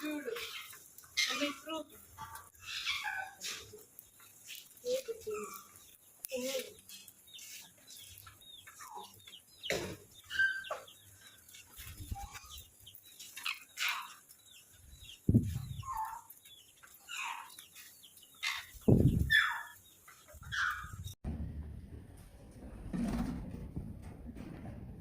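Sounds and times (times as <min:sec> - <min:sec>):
caged birds chirping: 0:00.0 - 0:21.2
loud low thumps: 0:21.2 - 0:22.6.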